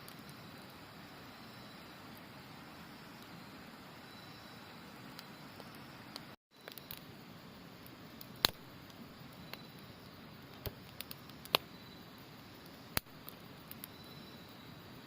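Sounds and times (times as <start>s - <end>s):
campfire crackling: 0.0s - 15.0s
insects trilling: 0.0s - 15.0s
fire popping: 5.0s - 14.1s.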